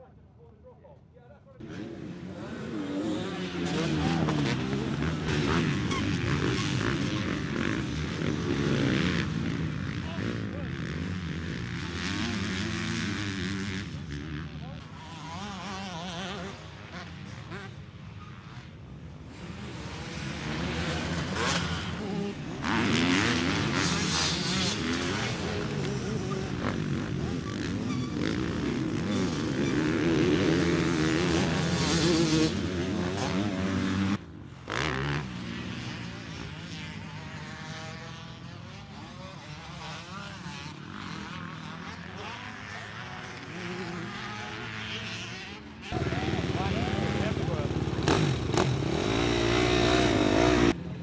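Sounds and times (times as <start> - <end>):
motocross bikes revving: 1.6 - 51.0.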